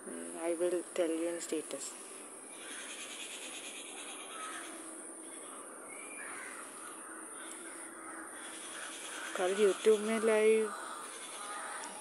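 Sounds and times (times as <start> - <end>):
steady background hiss: 0.0 - 12.0
faint bird calls: 2.5 - 12.0.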